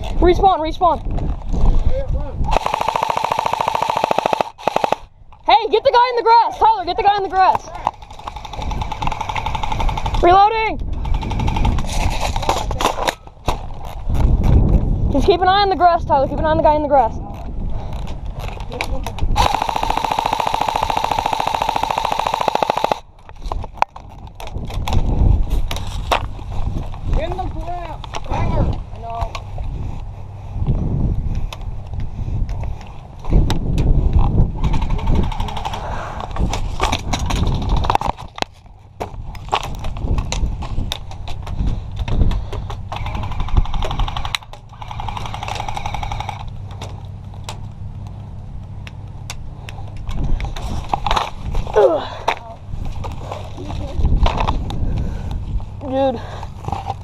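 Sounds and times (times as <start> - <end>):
steady low rumble: 0.0 - 57.0
airsoft gun full-auto burst: 2.5 - 5.1, 8.2 - 10.4, 19.4 - 23.0, 43.0 - 46.5
sharp clicks: 2.5 - 5.4, 18.0 - 25.0, 42.0 - 50.2.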